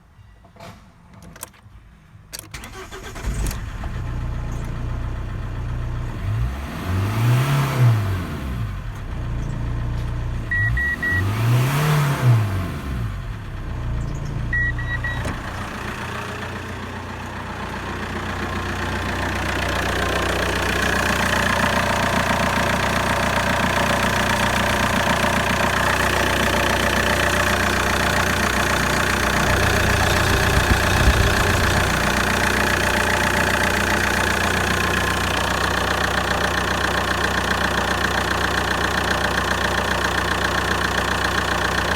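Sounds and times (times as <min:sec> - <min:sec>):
diesel engine starting and revving: 0:02.5 - 0:41.9
short electronic beeps: 0:10.5 - 0:11.3, 0:14.5 - 0:15.3.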